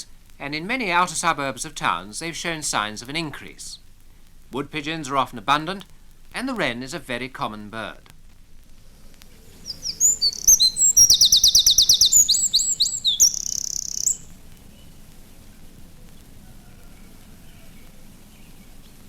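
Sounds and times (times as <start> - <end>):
wren singing trills: 9.3 - 15.1.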